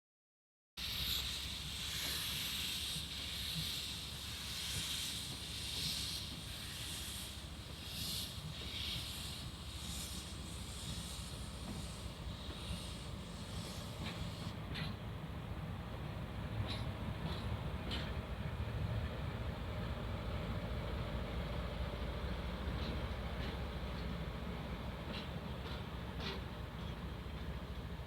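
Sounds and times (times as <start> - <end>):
steam locomotive hissing: 0.8 - 15.0.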